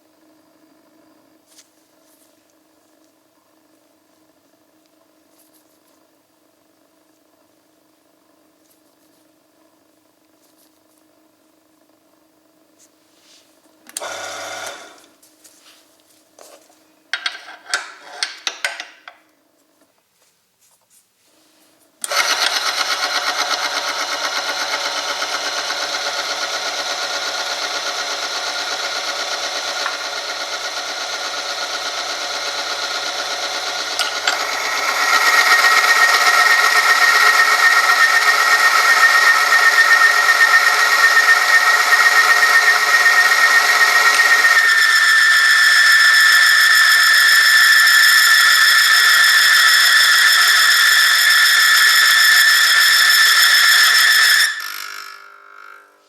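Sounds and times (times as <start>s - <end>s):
test machine electric motor running: 13.9s - 15.1s, 22.0s - 56.0s
high whine: 33.8s - 56.0s.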